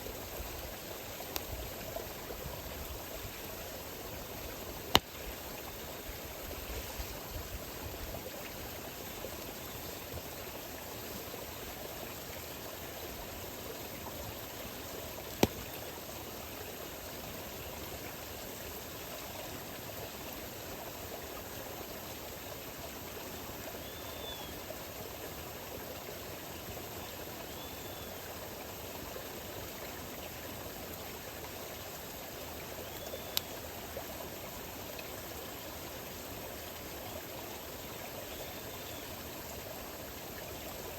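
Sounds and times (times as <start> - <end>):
water flowing: 0.0 - 23.9, 24.5 - 40.9
campfire popping: 15.3 - 15.7.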